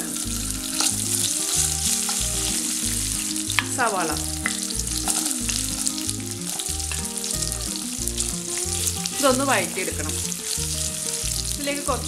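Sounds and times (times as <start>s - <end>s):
oil sizzling in a wok: 0.0s - 12.0s
spoon stirring and scraping pan: 0.1s - 3.7s.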